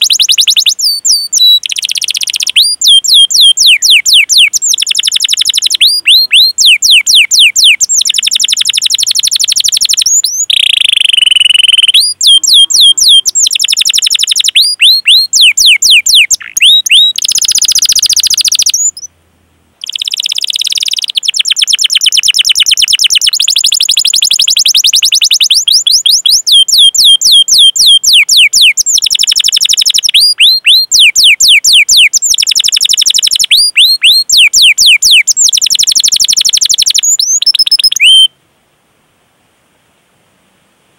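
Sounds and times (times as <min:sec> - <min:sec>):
canary singing: 0:00.0 - 0:19.1, 0:19.8 - 0:38.3.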